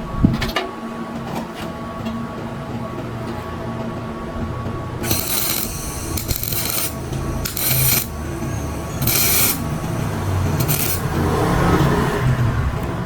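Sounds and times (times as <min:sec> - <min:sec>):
steady low hum: 0:00.0 - 0:13.0
hand tool scraping hard surface: 0:05.0 - 0:08.1, 0:08.9 - 0:09.8, 0:10.5 - 0:11.2.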